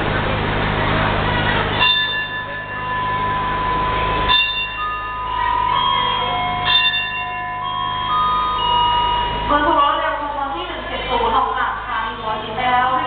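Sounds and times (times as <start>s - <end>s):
low steady rumble: 0.0s - 13.0s
bell-like chimes ringing: 1.8s - 10.3s.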